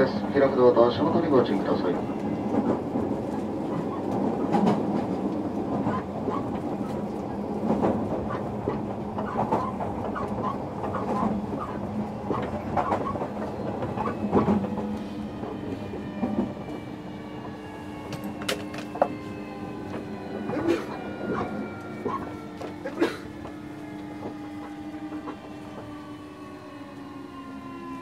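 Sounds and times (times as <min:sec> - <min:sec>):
high steady train tones: 0:00.0 - 0:28.0
train running gear hum: 0:00.0 - 0:28.0
wheels clicking over rail joints: 0:02.2 - 0:15.1, 0:18.0 - 0:25.9.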